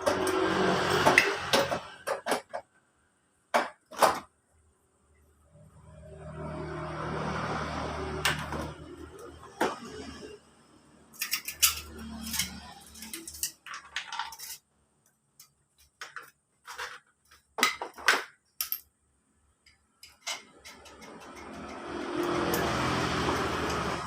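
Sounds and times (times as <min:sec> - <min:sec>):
metal parts and tools clinking: 0:11.1 - 0:14.7, 0:15.4 - 0:19.0, 0:20.0 - 0:22.7.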